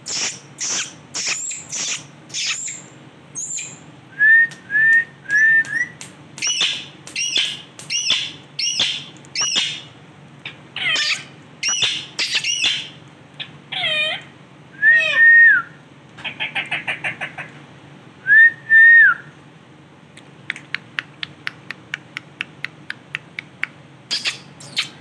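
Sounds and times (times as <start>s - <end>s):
parrot screeching: 0.1s - 2.8s, 10.8s - 13.0s, 13.7s - 14.3s
parrot chattering: 0.1s - 3.7s, 6.4s - 14.3s, 16.2s - 17.5s, 24.1s - 25.0s.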